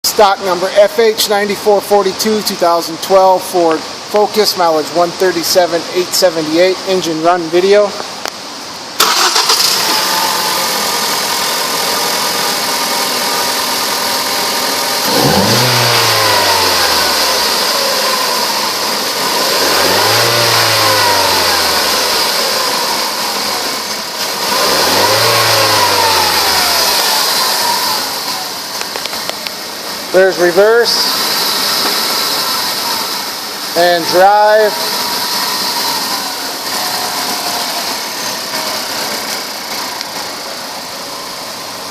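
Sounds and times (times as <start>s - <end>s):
car engine starting and revving: 9.0s - 41.7s.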